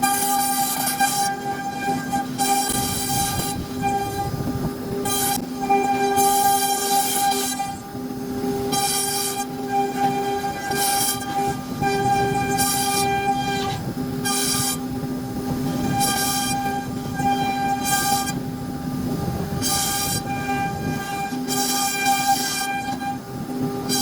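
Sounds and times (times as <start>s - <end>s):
router spindle carving wood: 0.0s - 7.9s, 8.6s - 24.0s.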